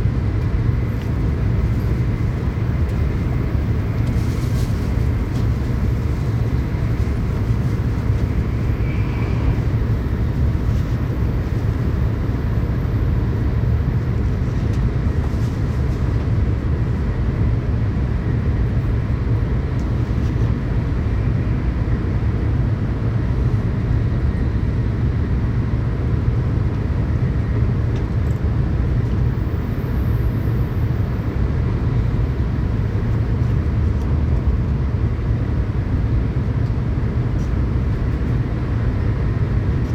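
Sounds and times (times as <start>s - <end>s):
train running rumble: 0.0s - 39.9s.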